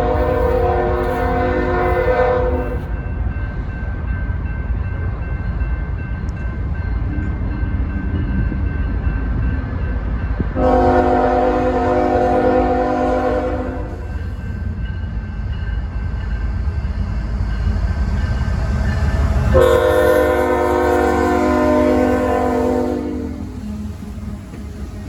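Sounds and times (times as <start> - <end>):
locomotive air horn: 0.0 - 2.9, 10.6 - 14.0, 19.5 - 23.4
passing train rumble: 0.0 - 25.0.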